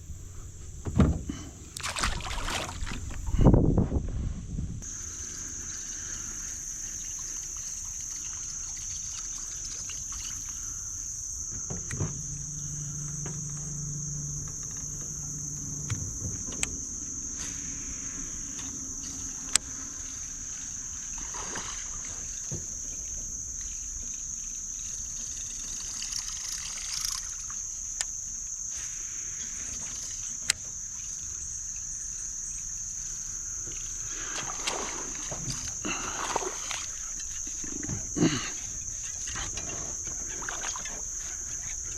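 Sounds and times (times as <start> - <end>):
low hum: 0.0 - 22.5
cricket chorus: 0.0 - 41.9.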